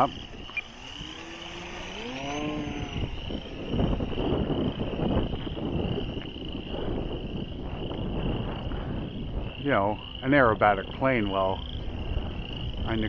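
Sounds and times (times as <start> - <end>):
rising motor-like tone: 0.0 - 8.7
insect chirring: 0.0 - 13.0
wind buffeting microphone: 0.0 - 13.0.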